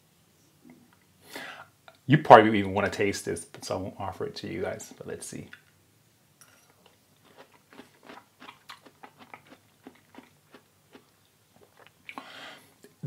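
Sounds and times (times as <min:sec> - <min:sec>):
person chewing mouth clicks: 0:07.3 - 0:12.2.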